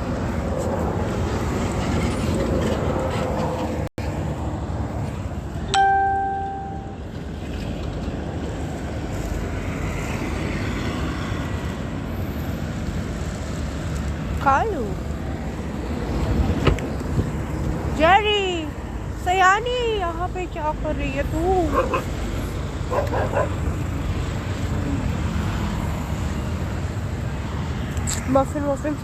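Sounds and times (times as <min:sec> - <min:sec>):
street background noise: 0:00.0 - 0:29.0
loud ringing tone: 0:05.7 - 0:07.1.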